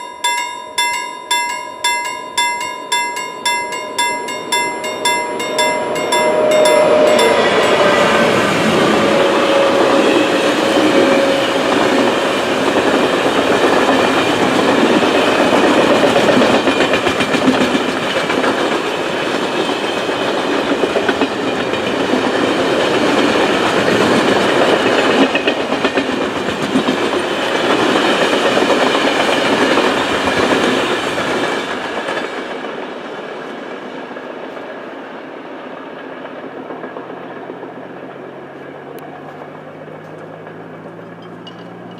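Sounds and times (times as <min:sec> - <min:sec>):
freight train rolling past: 0:00.0 - 0:41.9
wheels clicking over rail joints: 0:36.0 - 0:41.9.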